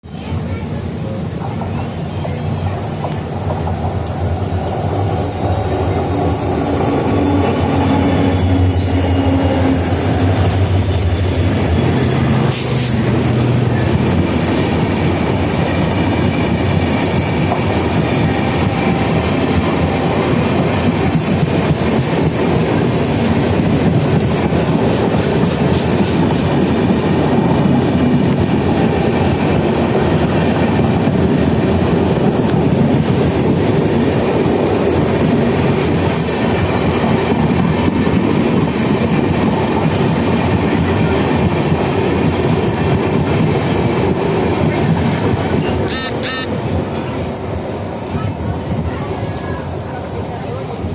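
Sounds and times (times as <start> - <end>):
train wheels clattering on rail joints: 1.3 - 49.4
locomotive engine drone: 2.4 - 21.6.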